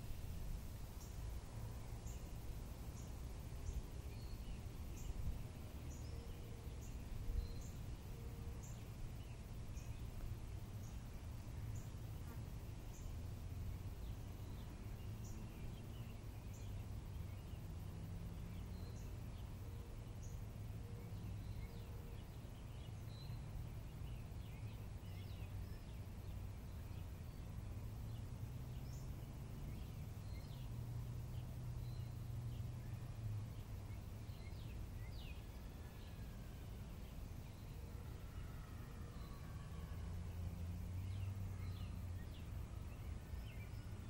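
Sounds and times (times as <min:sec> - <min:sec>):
wild birds chirping: 0:00.0 - 0:44.0.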